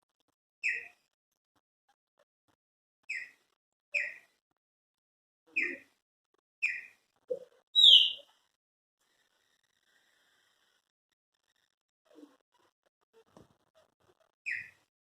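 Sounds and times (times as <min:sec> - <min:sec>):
blackbird calling: 0:07.8 - 0:08.2.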